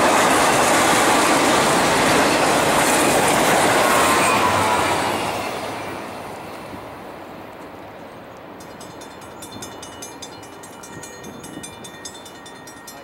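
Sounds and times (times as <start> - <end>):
freight train rumble: 0.0 - 13.0
crossing bell ringing: 8.5 - 13.0.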